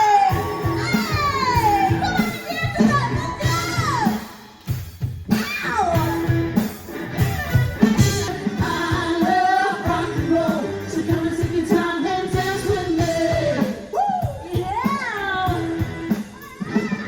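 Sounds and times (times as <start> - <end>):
pop song with singer and band: 0.0 - 17.0
steady drum beat: 0.0 - 17.0.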